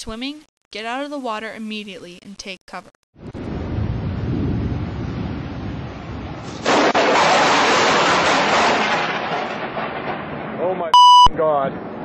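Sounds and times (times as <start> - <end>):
low rumble of wind: 3.2 - 6.8, 8.9 - 12.0
loud thunderclap: 3.2 - 10.9, 11.7 - 12.0.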